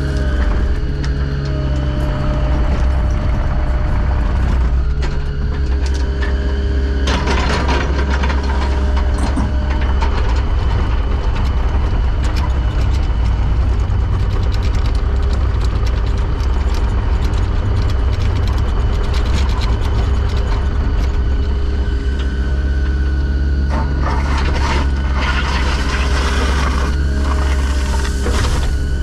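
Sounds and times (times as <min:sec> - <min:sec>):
heavy clanking and rattling: 0:00.0 - 0:22.4
heavy machine engine running: 0:00.0 - 0:29.0.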